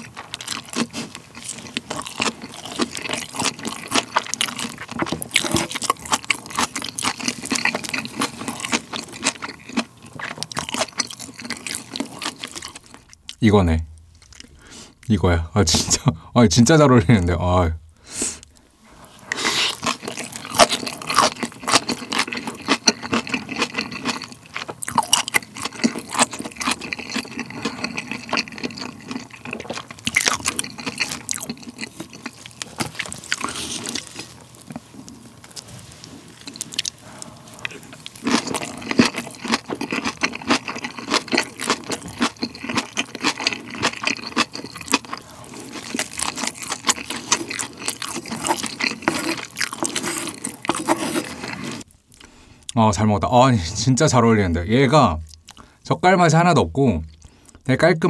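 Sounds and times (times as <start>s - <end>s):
wet crunchy chewing: 0.0s - 13.4s, 18.4s - 52.8s.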